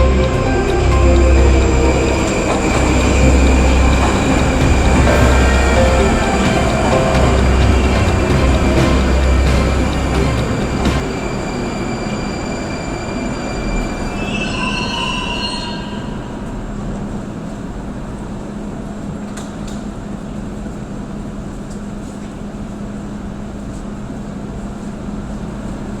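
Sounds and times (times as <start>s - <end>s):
high squealing tones: 0.0s - 16.5s
train rumbling on rails: 0.0s - 26.0s.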